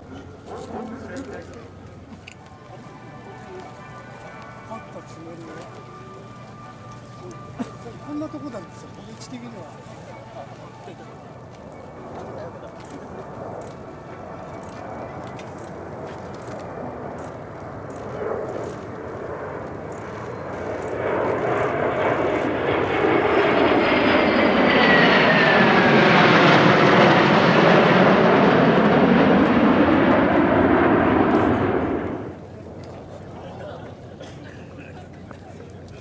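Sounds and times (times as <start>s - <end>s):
jet engine roar: 0.0s - 32.8s
jet whine falling in pitch: 2.5s - 10.9s, 20.4s - 32.4s.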